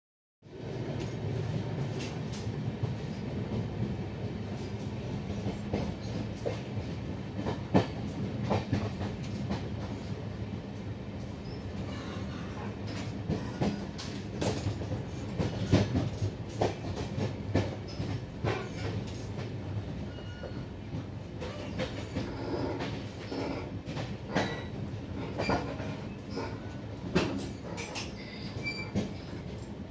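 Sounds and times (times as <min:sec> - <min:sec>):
train rumbling: 0:00.4 - 0:29.9
wheels clicking on rail joints: 0:21.4 - 0:29.8.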